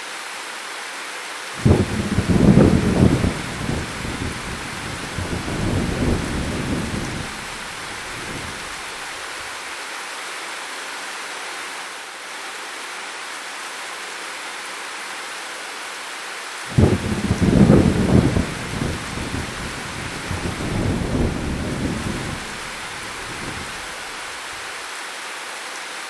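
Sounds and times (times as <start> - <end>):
thunder rumble: 1.6 - 9.3, 16.7 - 24.6
heavy rain hissing: 1.6 - 9.7, 16.6 - 24.9.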